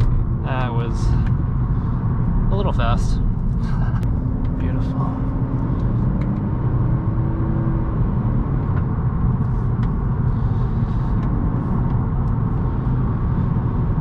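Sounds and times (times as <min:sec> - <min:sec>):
car engine running: 0:00.0 - 0:14.0
tyre and road noise: 0:00.0 - 0:14.0.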